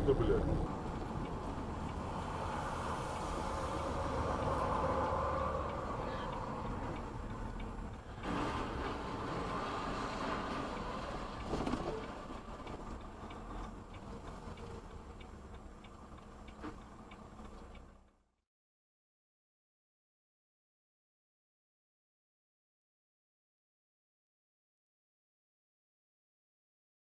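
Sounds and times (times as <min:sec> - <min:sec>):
car road rumble: 0:00.0 - 0:18.3
faint regular ticking: 0:00.6 - 0:08.2, 0:11.4 - 0:18.2.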